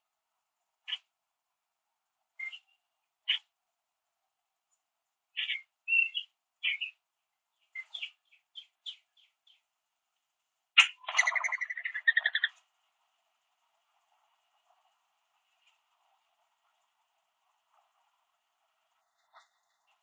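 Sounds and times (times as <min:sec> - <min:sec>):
birds chirping: 0:02.4 - 0:03.5, 0:05.4 - 0:09.7, 0:10.8 - 0:12.6.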